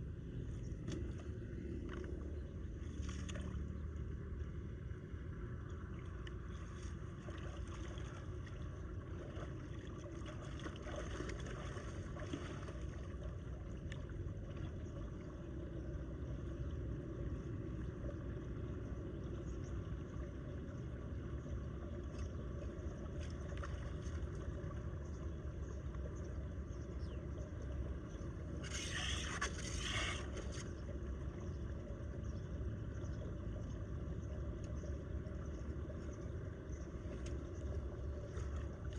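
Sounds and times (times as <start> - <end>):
water rushing into a drain: 28.6 - 30.7.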